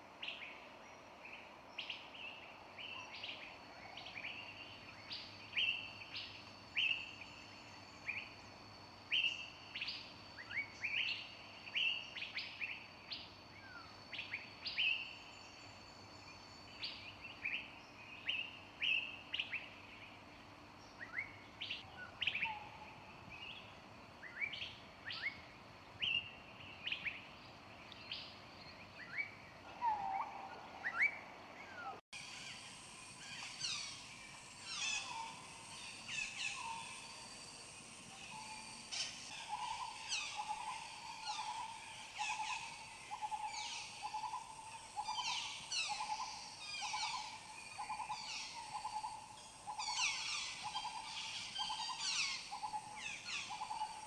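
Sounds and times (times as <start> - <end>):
faint high-pitched whine: 0.0 - 54.0.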